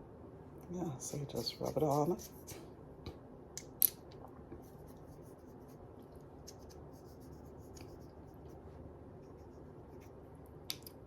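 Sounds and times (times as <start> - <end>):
light rubbing on skin: 1.0 - 2.6, 4.6 - 10.2.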